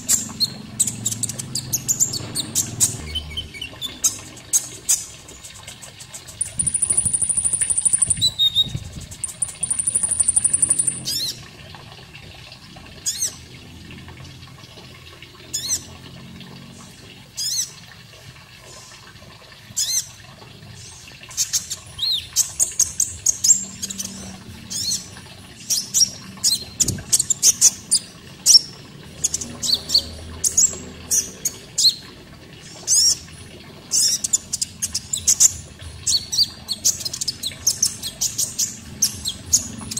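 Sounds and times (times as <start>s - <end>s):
high buzzing bird trills: 6.3s - 11.4s
sharp bird chirps and whistles: 6.4s - 11.3s.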